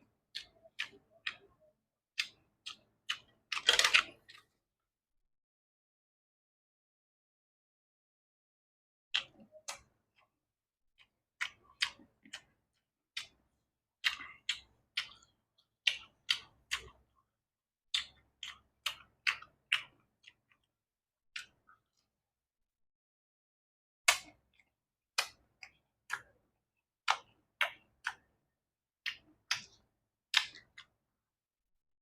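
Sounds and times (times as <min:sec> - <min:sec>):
person chewing food: 0:00.0 - 0:04.6, 0:09.1 - 0:10.4, 0:11.0 - 0:22.2, 0:24.1 - 0:31.1
wet mouth clicks and smacks: 0:17.9 - 0:20.6, 0:29.0 - 0:30.9.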